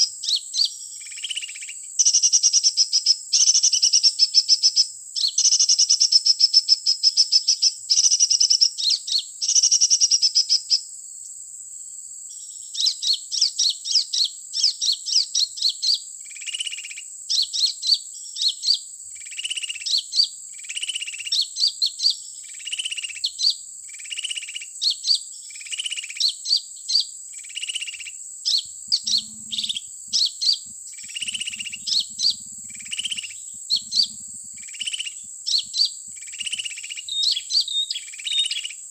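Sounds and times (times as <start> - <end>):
small songbird calls: 0.0 - 11.4, 12.3 - 38.9
thin steady high tone: 28.6 - 35.3.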